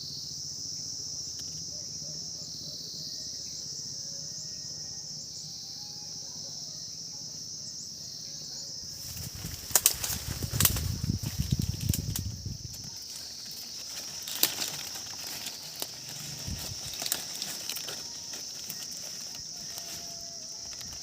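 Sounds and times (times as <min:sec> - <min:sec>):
insects droning: 0:00.0 - 0:21.0
leaves and branches rustling: 0:08.8 - 0:21.0.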